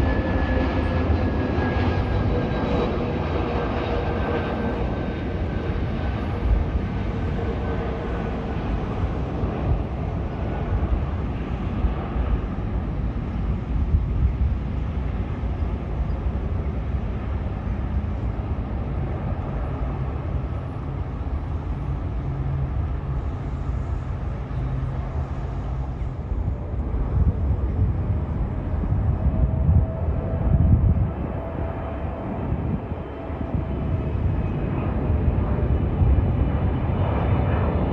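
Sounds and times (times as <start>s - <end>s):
jet engines running: 0.0s - 37.9s.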